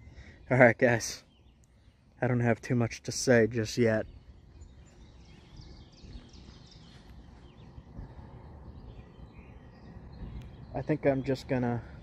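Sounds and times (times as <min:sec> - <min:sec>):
faint birds chirping: 0:00.0 - 0:12.0
low steady rumble: 0:03.4 - 0:12.0.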